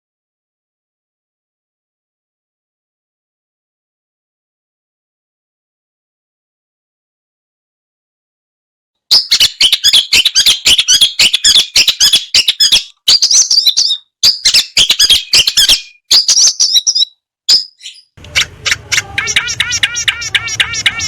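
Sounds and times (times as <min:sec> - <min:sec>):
shrike singing chirps and trills: 0:09.1 - 0:21.0.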